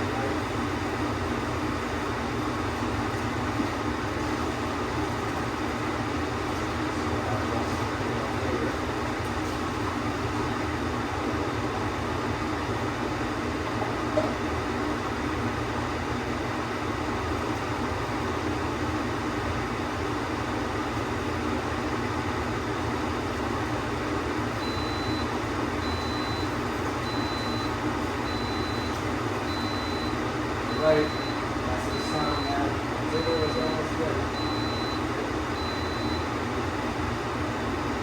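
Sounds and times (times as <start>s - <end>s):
steady hum: 20.0s - 38.0s
pressure cooker beeping: 24.6s - 36.4s.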